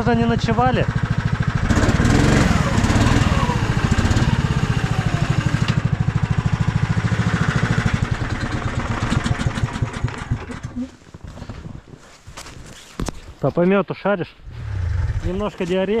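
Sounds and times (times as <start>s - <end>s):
snowmobile engine idling: 0.0s - 11.1s.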